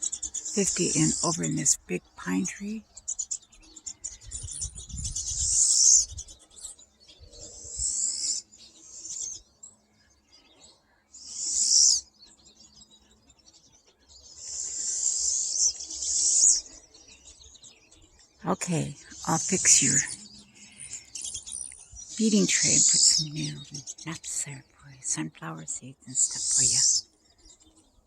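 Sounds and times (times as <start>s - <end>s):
birds chattering: 0.0s - 28.0s
birds buzzy high calls: 10.8s - 17.6s.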